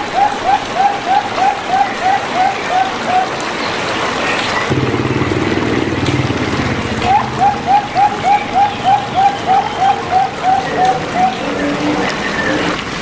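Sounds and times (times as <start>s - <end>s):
low pulsing hum: 4.7s - 9.4s
bird chirping: 7.0s - 12.7s.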